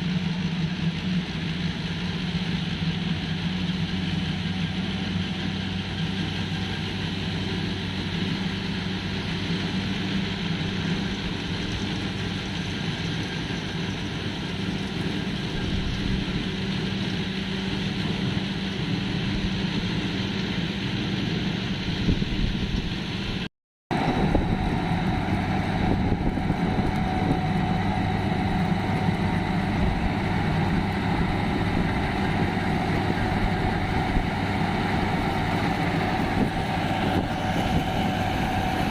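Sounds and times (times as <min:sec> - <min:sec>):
tractor engine under load: 0:23.9 - 0:38.9.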